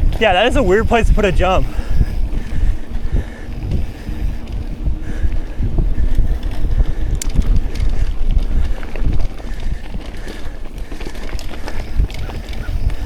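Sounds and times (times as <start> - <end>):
bike rattle: 0.0 - 13.0
heavy rumble: 0.0 - 13.0
wind buffeting microphone: 0.0 - 13.0.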